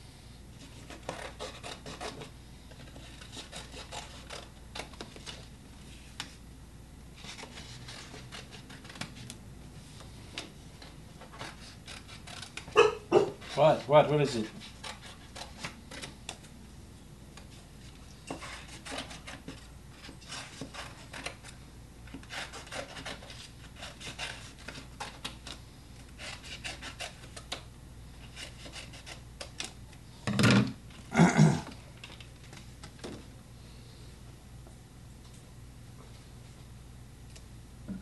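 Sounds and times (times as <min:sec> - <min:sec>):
art tools scraping paper: 0:00.6 - 0:06.1, 0:07.2 - 0:09.3, 0:11.3 - 0:16.1, 0:17.8 - 0:27.5, 0:28.2 - 0:29.2.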